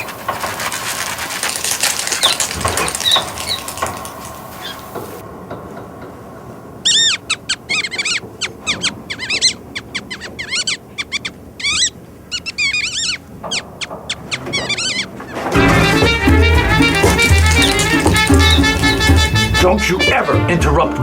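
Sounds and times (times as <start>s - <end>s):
small animal squeaking: 0.0s - 5.2s, 6.8s - 15.6s, 16.9s - 19.4s.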